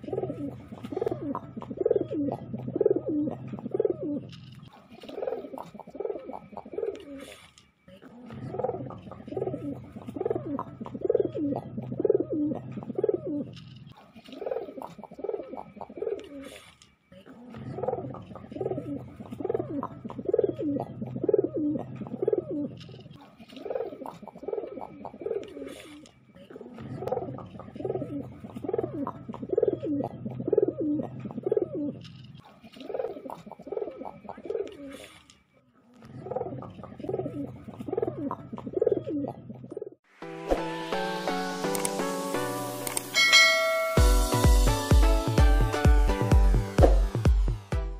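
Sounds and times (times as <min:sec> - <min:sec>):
pigeon cooing: 0:00.0 - 0:07.3.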